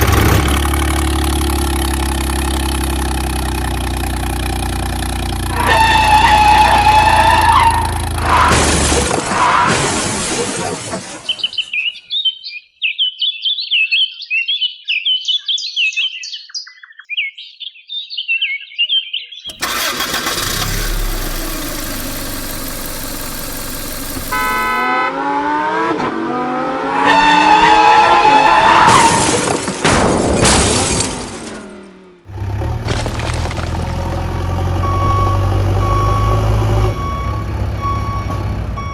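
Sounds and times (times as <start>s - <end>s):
vehicle engine running: 0.0s - 9.0s, 19.5s - 25.2s, 31.5s - 38.9s
birds chirping: 11.2s - 20.4s.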